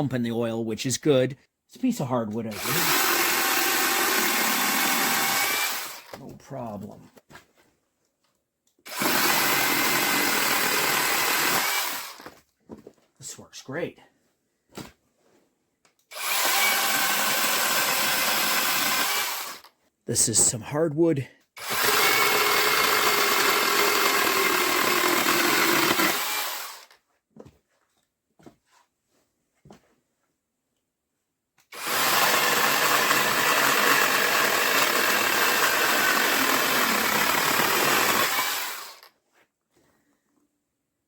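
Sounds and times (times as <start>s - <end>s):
mini chainsaw cutting wood: 2.5s - 6.2s, 8.8s - 12.4s, 16.1s - 19.7s, 21.6s - 27.0s, 31.6s - 39.2s.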